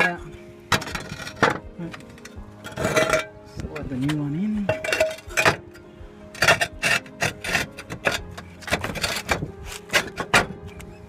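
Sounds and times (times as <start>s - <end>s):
roof tiles scraping and knocking: 6.4s - 10.8s.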